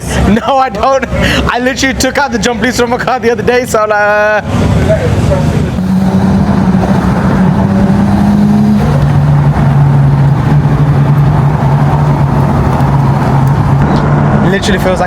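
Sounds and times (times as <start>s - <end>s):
car engine running: 5.5s - 14.4s.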